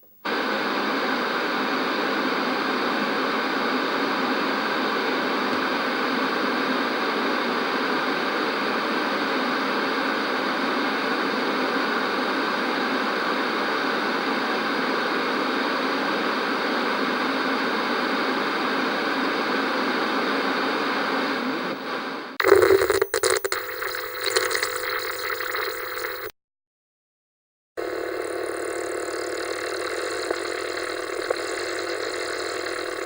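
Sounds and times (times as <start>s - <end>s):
tv static hiss: 0.1s - 7.4s, 20.8s - 26.3s, 27.8s - 33.0s.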